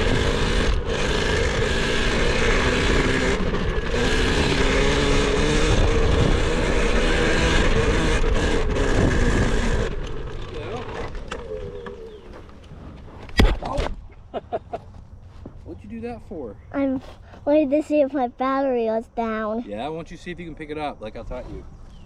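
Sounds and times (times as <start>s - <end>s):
electric dirt bike motor: 0.0s - 12.6s.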